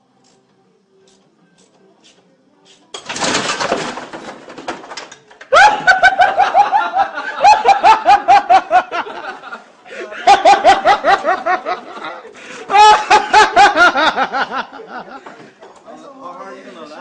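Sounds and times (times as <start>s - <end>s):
loud crash: 3.0s - 5.1s
shrill rapid laughter: 5.5s - 15.1s.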